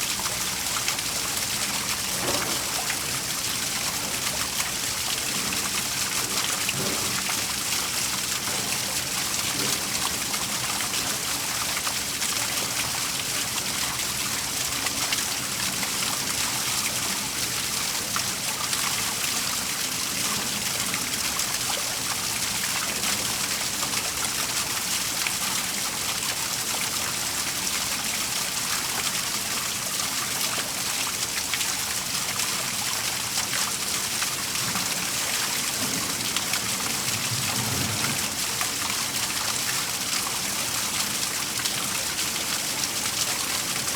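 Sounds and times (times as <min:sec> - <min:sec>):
waterfall splashing: 0:33.0 - 0:43.9.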